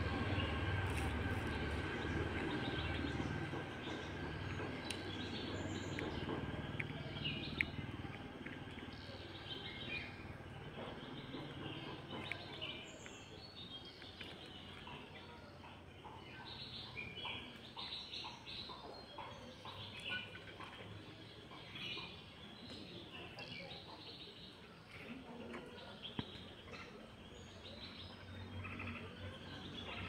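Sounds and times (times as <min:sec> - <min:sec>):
low hum: 0:00.0 - 0:14.9
birds chirping and calling: 0:00.0 - 0:30.0
outdoor background noise: 0:00.0 - 0:30.0.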